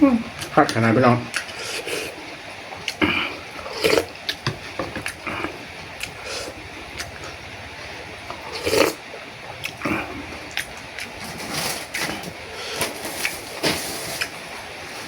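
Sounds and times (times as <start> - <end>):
chewing: 0.4 - 14.4
person slurping soup: 1.3 - 2.2, 2.8 - 7.4, 8.3 - 9.0, 9.6 - 14.4.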